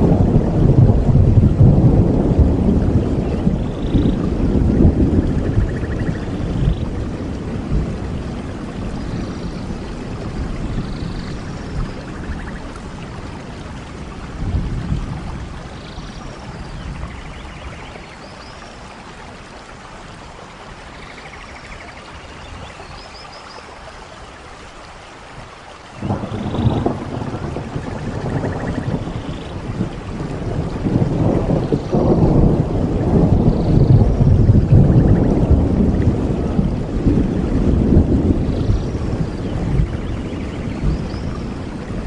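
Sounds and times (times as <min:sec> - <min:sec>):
thunder rolling: 0:00.0 - 0:15.6, 0:26.0 - 0:42.0
steady rain falling: 0:00.0 - 0:42.0.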